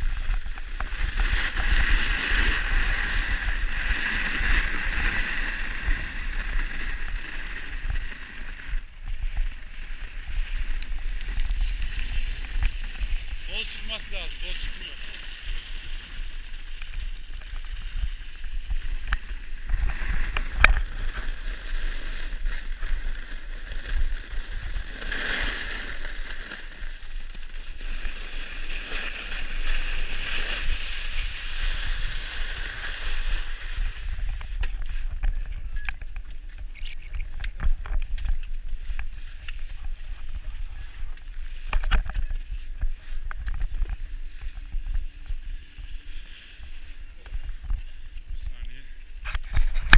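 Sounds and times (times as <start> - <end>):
wind rumble on microphone: 0.0 - 49.9
hiss of sliding over snow: 9.4 - 34.5, 45.2 - 48.0.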